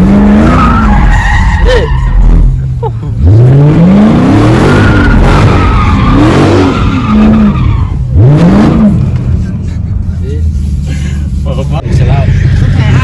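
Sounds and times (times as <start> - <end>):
car engine revving: 0.0 - 13.0
tyres squealing and skidding: 0.1 - 2.8, 4.2 - 8.4.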